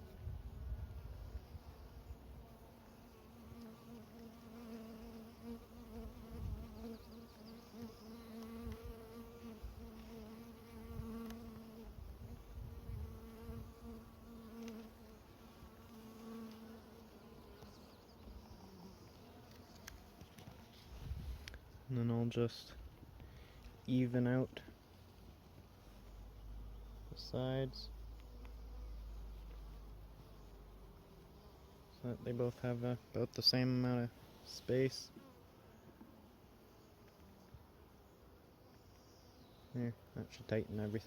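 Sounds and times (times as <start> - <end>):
bees buzzing: 1.3 - 20.8.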